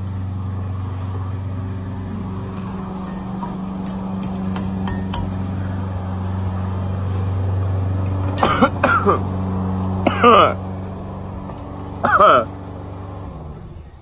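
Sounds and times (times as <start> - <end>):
steady low hum: 0.0 - 14.0
utensil clinking against bowl: 2.5 - 5.8
person coughing: 8.3 - 9.3, 10.0 - 10.6, 12.0 - 12.5.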